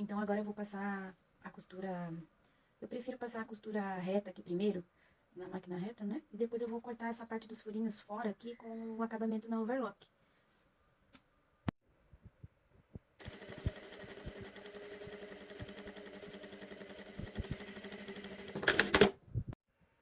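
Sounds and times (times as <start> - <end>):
sewing machine stitching: 13.2 - 19.2.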